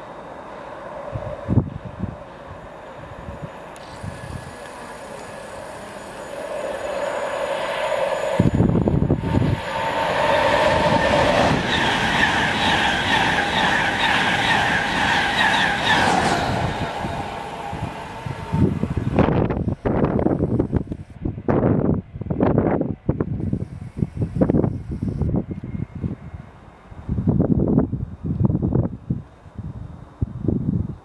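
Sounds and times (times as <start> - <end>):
steady whine: 0.0 - 27.4
train passing at speed: 0.0 - 31.0
train wheels beating: 4.2 - 19.4.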